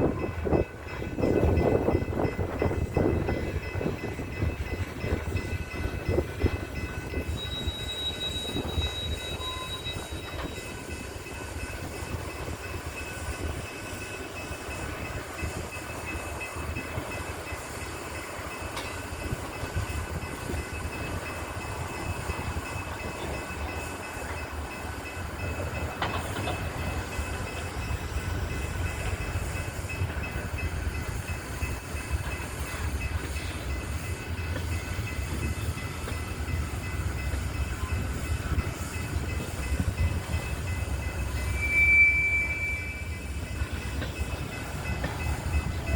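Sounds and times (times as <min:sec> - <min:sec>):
train cars rumbling: 0:00.0 - 0:45.9.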